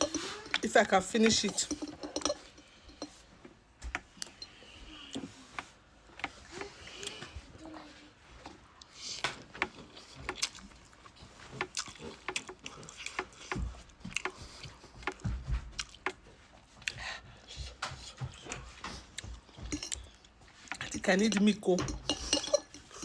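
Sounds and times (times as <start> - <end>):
person chewing noodles: 8.7 - 17.6.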